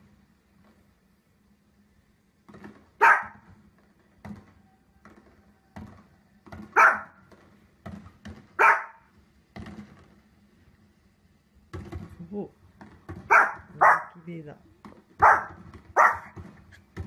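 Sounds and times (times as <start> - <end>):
fireworks thumps and pops: 2.4 - 8.6, 9.4 - 10.5, 11.6 - 13.8, 14.7 - 17.0
small dog barking: 3.0 - 3.5, 6.7 - 7.2, 8.6 - 9.1, 13.3 - 14.2, 15.2 - 16.4.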